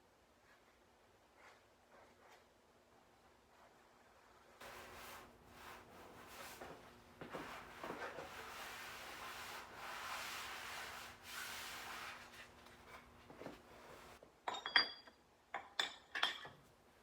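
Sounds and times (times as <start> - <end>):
metallic clinks and taps: 14.4 - 16.7.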